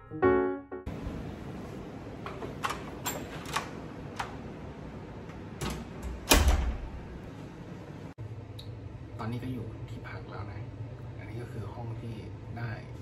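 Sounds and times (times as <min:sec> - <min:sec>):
door latch clicks: 0:05.6 - 0:06.9
door thudding shut: 0:06.1 - 0:07.0.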